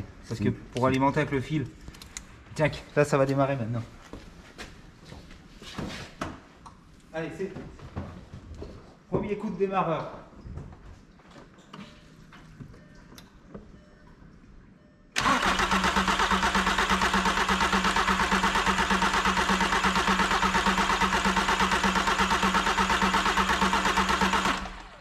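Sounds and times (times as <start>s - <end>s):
starter motor cranking engine: 15.2s - 25.0s.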